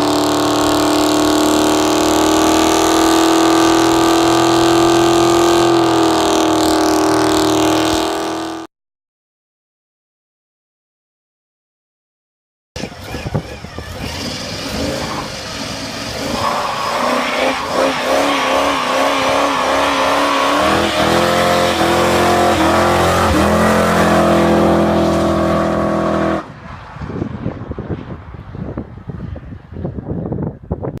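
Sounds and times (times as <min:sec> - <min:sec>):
car engine revving: 0:00.0 - 0:08.7, 0:12.8 - 0:26.6
tyre squeal: 0:12.8 - 0:25.7.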